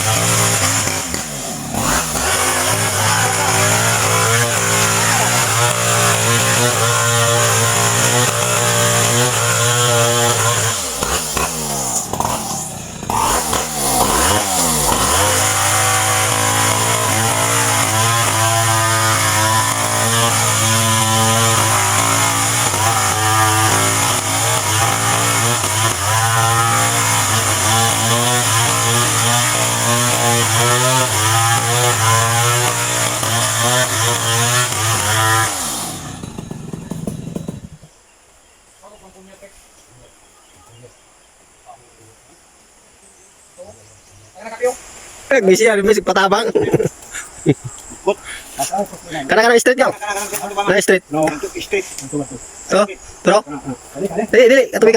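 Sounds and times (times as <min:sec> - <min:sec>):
chainsaw engine revving: 0:00.0 - 0:37.9.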